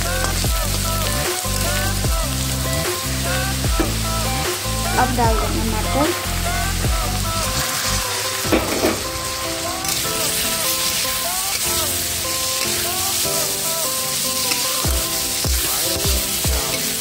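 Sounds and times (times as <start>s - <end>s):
background music melody: 0.0s - 17.0s
vegetables sizzling in hot oil: 0.0s - 17.0s
spatula stirring: 7.5s - 17.0s.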